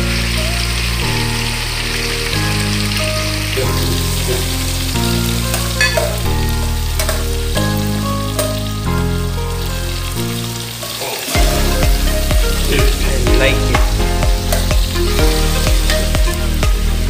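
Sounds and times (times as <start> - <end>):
chicken sizzling in a wok: 0.0 - 13.5, 14.4 - 17.0
slow background music: 0.0 - 17.0.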